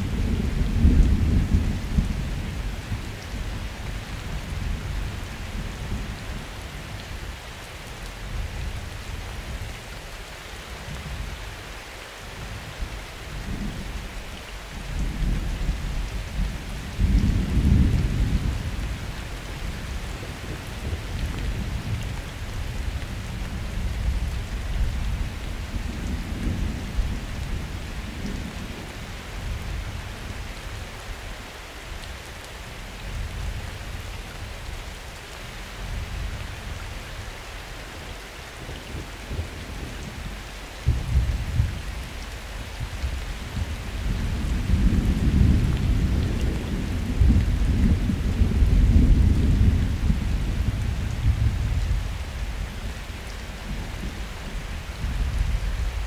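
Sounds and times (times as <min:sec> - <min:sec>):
low rolling thunder: 0:00.0 - 0:03.6, 0:14.9 - 0:29.9, 0:42.8 - 0:52.8
steady rain: 0:00.0 - 0:56.0.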